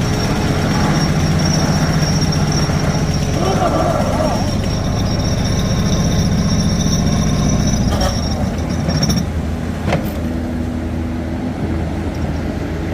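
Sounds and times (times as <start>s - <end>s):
high whine: 0.0s - 11.8s
construction machine engine rumble: 0.0s - 12.9s.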